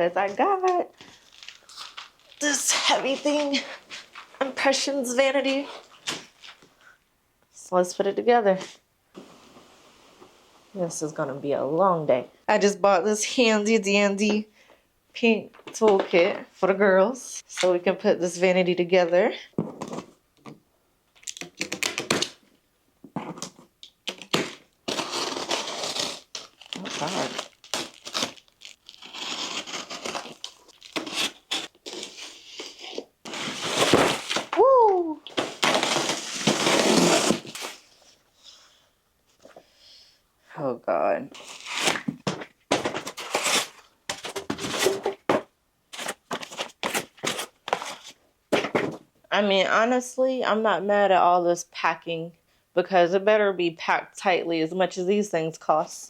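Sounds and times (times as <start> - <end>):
packing material tearing and rustling: 1.1 - 4.3, 24.0 - 34.6, 35.2 - 38.0, 41.4 - 45.3, 45.9 - 48.2.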